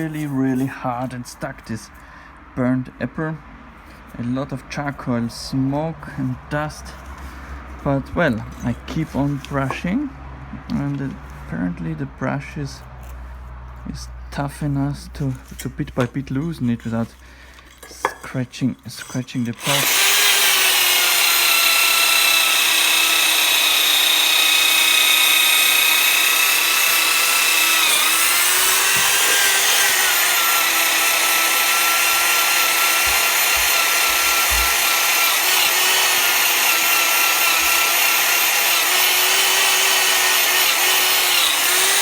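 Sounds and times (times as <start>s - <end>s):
electric drill motor whine: 19.5s - 42.0s.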